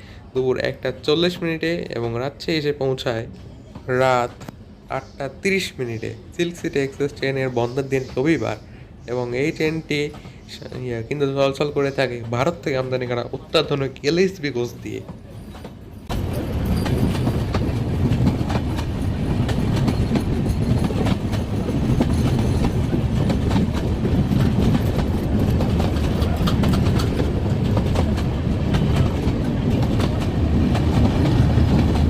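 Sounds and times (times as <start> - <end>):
train rumbling on track: 0.0 - 32.0
wheels clattering over rail joints: 14.9 - 32.0.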